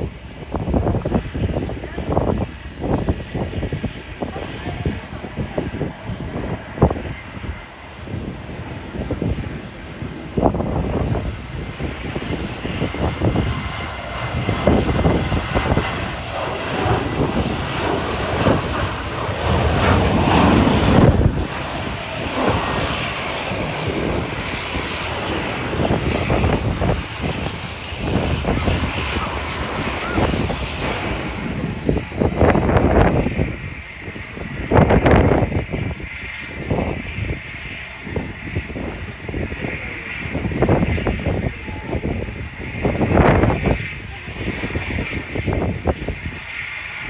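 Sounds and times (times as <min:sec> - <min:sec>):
jet engines at takeoff: 0:00.0 - 0:47.0
wind buffeting microphone: 0:00.0 - 0:47.0.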